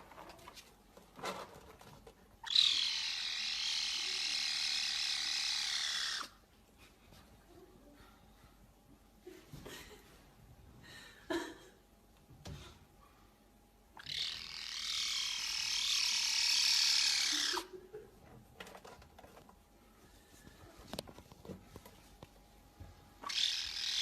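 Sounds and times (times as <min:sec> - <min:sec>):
kitten harsh raspy call: 0:02.4 - 0:06.4, 0:14.0 - 0:17.7, 0:23.2 - 0:24.0
kitten squeaky calls: 0:02.4 - 0:06.4, 0:14.0 - 0:17.7, 0:23.2 - 0:24.0.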